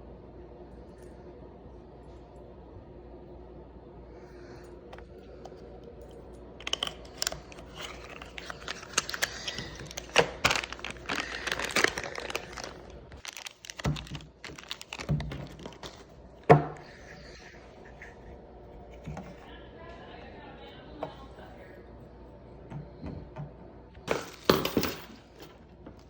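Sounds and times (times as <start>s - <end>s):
rustling and crinkling: 4.9s - 16.4s
clicks and knocks of small parts: 6.1s - 16.0s.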